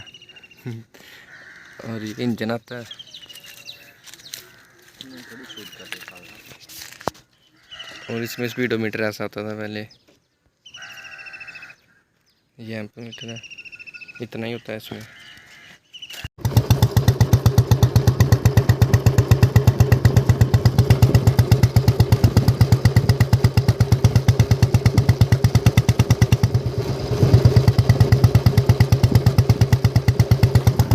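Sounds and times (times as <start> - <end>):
motorcycle engine idling: 16.4 - 30.9.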